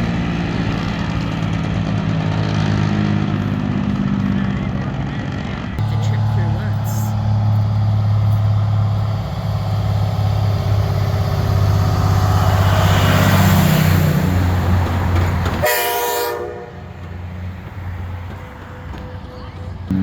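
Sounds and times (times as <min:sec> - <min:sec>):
diesel truck engines running: 0:00.0 - 0:20.0
truck air horn blast: 0:15.6 - 0:16.9.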